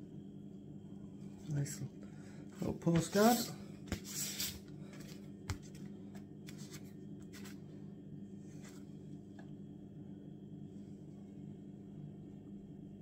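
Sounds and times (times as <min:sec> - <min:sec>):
steady low hum: 0:00.0 - 0:13.0
paper rustling: 0:03.0 - 0:07.6.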